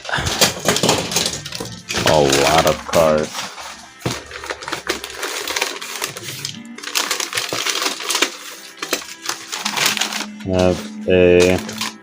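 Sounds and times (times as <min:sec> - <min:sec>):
newspaper crackling and rustling: 0:00.1 - 0:12.0.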